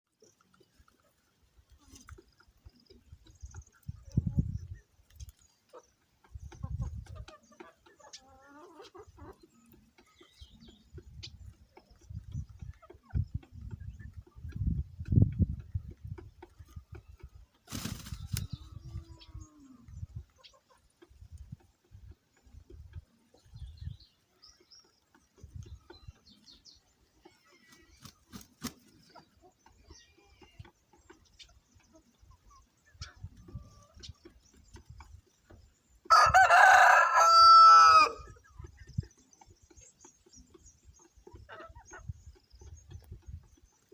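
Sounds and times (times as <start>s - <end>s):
chickens clucking: 0.1s - 43.9s
drawn-out wavering chicken call: 36.1s - 38.3s.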